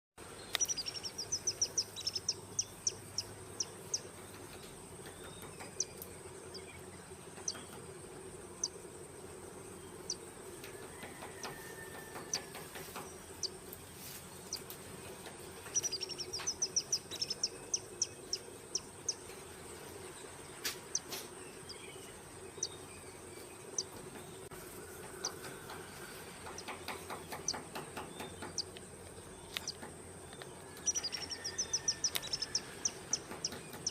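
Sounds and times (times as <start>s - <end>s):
woodpecker calling: 0.4s - 6.0s, 15.2s - 19.3s, 26.5s - 33.9s
high insect-like hiss: 7.3s - 33.9s
woodpecker knocking: 25.0s - 33.9s.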